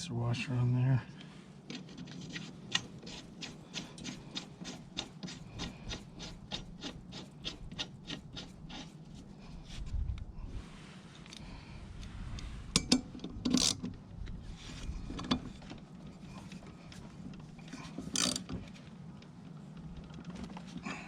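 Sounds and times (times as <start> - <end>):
wrench clicking and scraping: 1.7 - 9.2, 12.7 - 13.9, 17.6 - 18.5.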